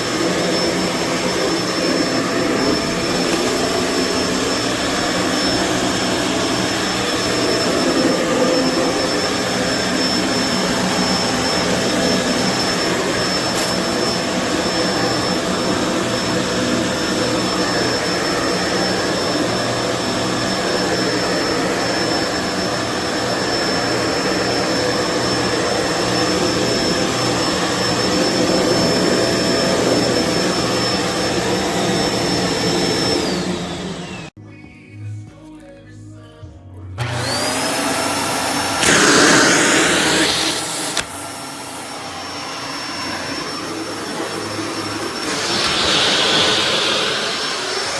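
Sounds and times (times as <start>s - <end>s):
vacuum cleaner running: 0.0s - 34.4s, 37.0s - 47.9s.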